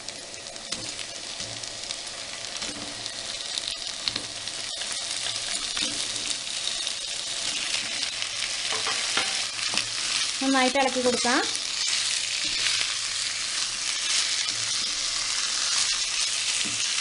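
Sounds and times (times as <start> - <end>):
chicken sizzling in oil: 0.0 - 17.0.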